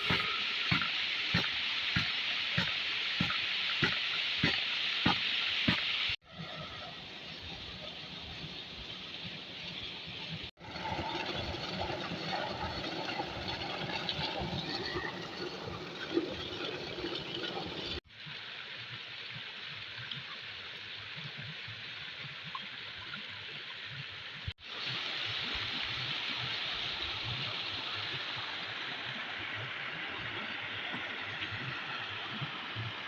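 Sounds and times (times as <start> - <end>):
waterfall splashing over rocks: 0.0 - 6.2, 24.6 - 33.0.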